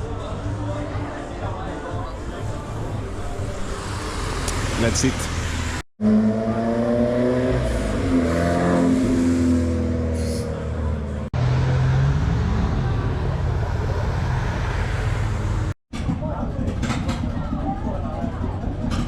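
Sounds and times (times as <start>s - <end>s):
car engine revving: 3.0s - 15.8s.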